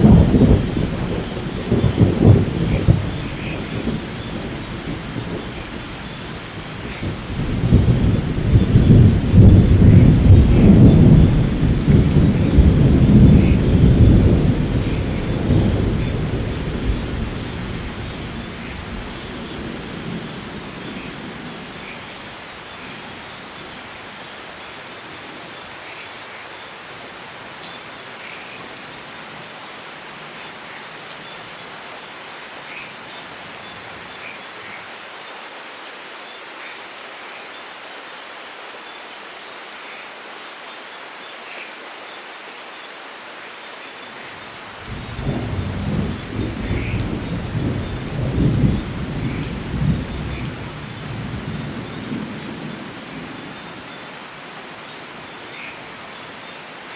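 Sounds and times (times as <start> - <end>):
thunder rumble: 0.0 - 22.0, 44.9 - 53.8
steady rainfall: 0.0 - 56.9.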